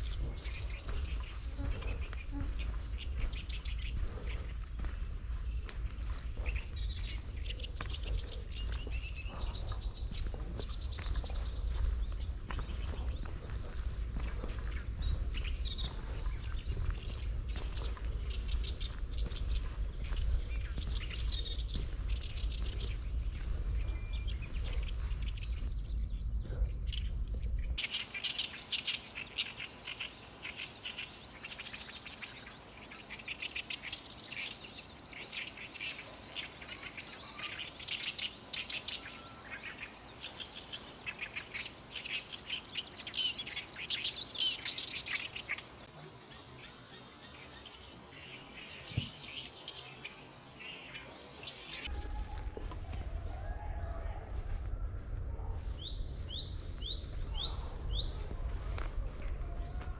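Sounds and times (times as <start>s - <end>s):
faint bird calls: 0.0s - 25.7s, 27.8s - 58.2s
low rumble: 0.0s - 27.8s
songbird singing fast run: 0.0s - 52.1s, 55.4s - 58.5s.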